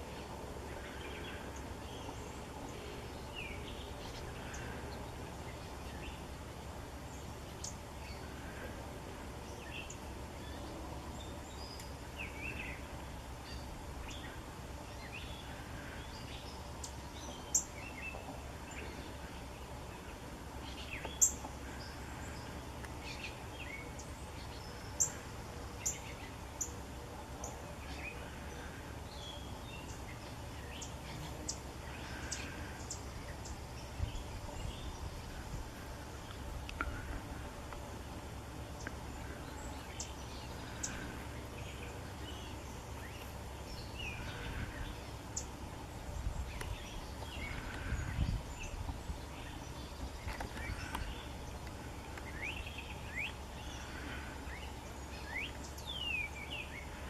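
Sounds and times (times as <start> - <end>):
low outdoor rumble: 0.0 - 57.0
songbirds chirping: 0.0 - 57.0.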